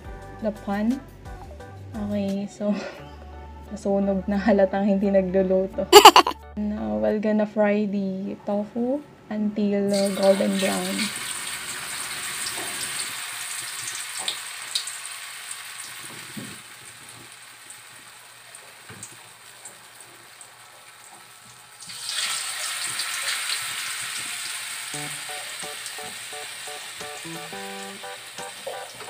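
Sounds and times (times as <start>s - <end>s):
tofu sizzling in hot oil: 9.9s - 29.0s.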